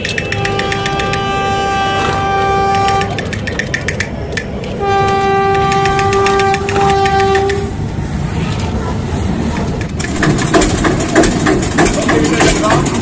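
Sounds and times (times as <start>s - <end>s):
toy horn-like electronic tone: 0.0s - 3.2s
fast mechanical clicking: 2.8s - 4.7s, 9.8s - 13.0s.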